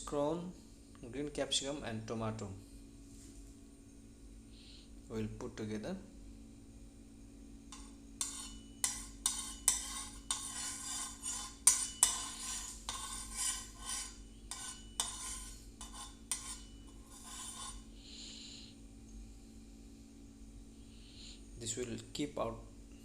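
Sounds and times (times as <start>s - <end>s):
utensil stirring vegetables in pan: 7.7s - 17.9s.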